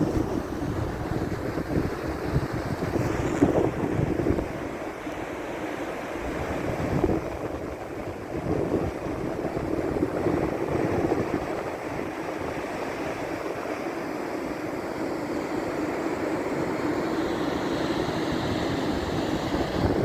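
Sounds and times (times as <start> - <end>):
wind buffeting microphone: 0.0 - 4.8, 6.2 - 13.7, 18.0 - 20.0
sea waves washing onto beach: 0.0 - 20.0.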